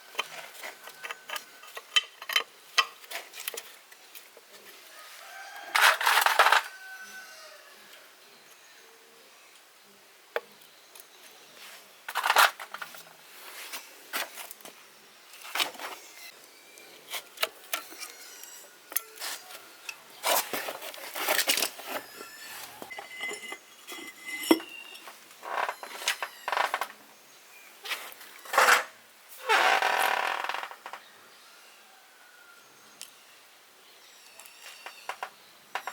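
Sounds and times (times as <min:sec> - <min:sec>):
metal parts and tools clinking: 0:00.2 - 0:03.6, 0:17.7 - 0:26.3.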